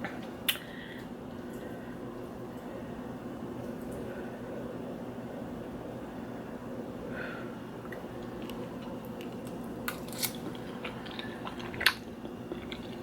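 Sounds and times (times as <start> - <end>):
steady low hum: 0.0 - 13.0
soft chewing: 7.8 - 13.0.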